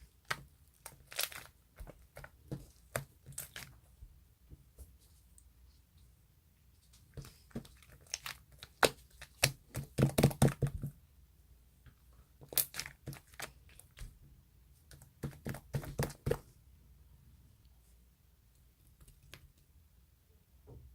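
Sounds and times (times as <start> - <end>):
handling noise crinkling and rustling: 0.0 - 6.1, 6.7 - 11.0, 12.0 - 14.2.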